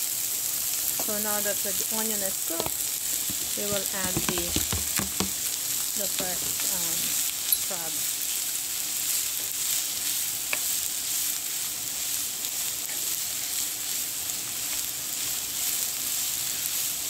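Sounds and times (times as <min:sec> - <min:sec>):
food sizzling in a frying pan: 0:00.0 - 0:17.0
spatula tapping pan: 0:02.5 - 0:06.8
wooden spatula stirring: 0:02.5 - 0:07.2.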